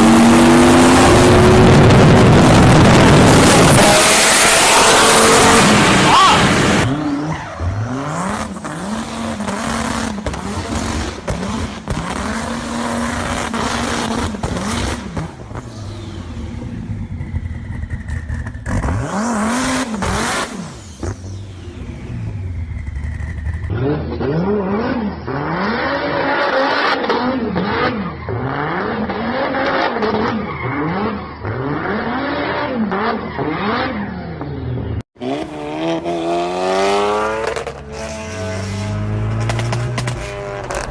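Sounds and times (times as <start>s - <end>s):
sports car engines revving: 0.0s - 40.9s
exhaust pops and crackles: 38.8s - 40.9s.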